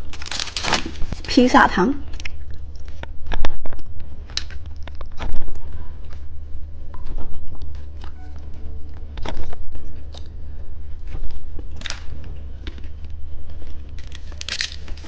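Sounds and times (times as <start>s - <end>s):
plastic packaging crackling: 0.0s - 3.5s, 11.1s - 15.0s
steady low hum: 0.0s - 15.0s.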